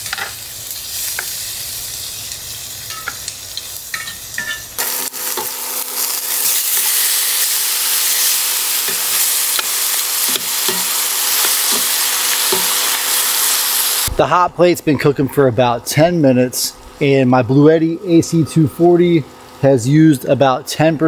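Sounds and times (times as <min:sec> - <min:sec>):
food sizzling in a skillet: 0:00.0 - 0:14.1.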